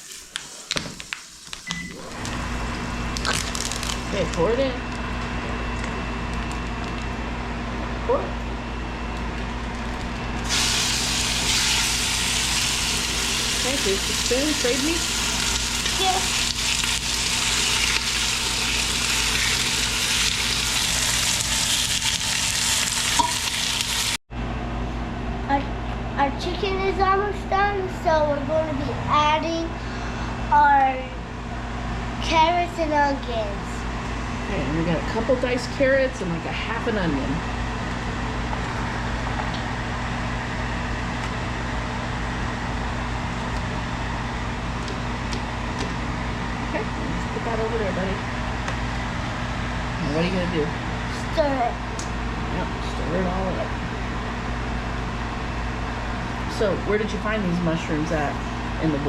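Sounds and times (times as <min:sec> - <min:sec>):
chicken sizzling in hot pan: 0:10.4 - 0:24.2.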